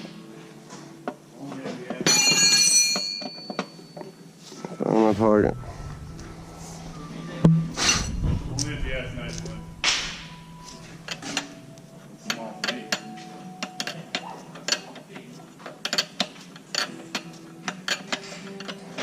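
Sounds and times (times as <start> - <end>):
metal tools clinking on metal: 2.0 - 4.2, 10.5 - 19.0.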